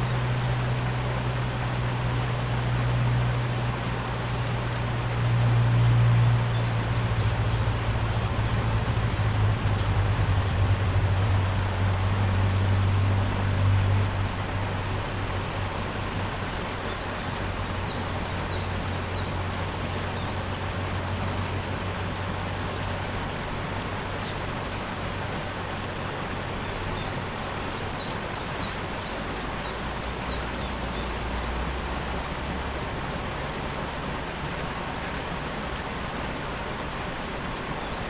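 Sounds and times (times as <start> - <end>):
songbird singing downward notes: 0.0 - 0.8, 5.8 - 11.5, 16.8 - 20.4, 27.0 - 31.6
waterfall rushing: 0.0 - 38.0.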